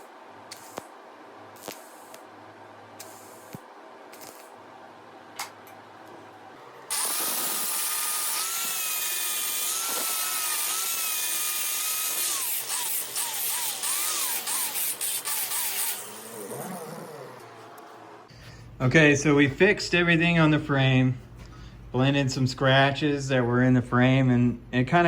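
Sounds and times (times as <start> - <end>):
power grinder whining: 6.9 - 18.2.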